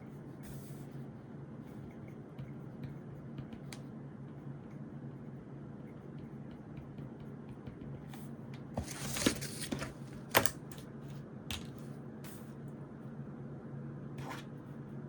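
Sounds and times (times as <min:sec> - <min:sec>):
low steady hum: 0:00.0 - 0:15.0
pencil taps and ticks: 0:01.8 - 0:05.2, 0:05.8 - 0:08.7
paper rustle: 0:08.8 - 0:10.5.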